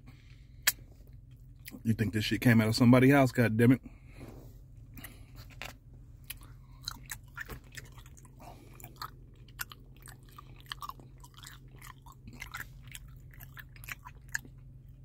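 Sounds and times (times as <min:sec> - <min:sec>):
person chewing wet food: 0:04.8 - 0:15.0.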